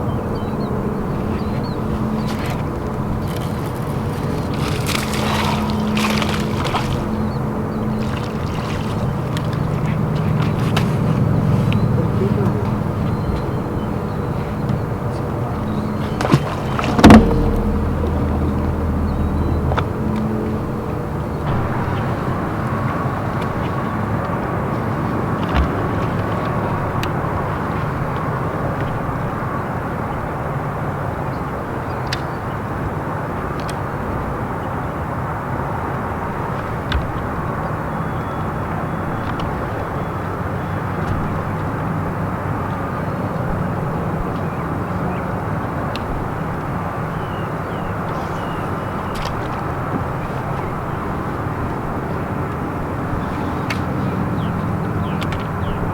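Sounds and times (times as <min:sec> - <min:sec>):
boat motor running: 0:00.0 - 0:55.9
low thump: 0:16.2 - 0:22.2.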